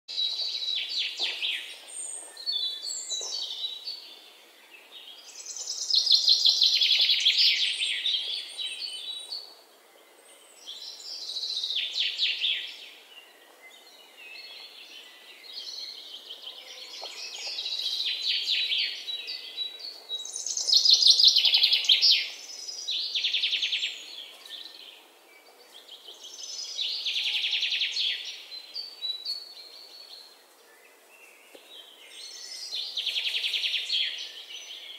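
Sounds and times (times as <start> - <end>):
birds singing: 0.1 - 34.9.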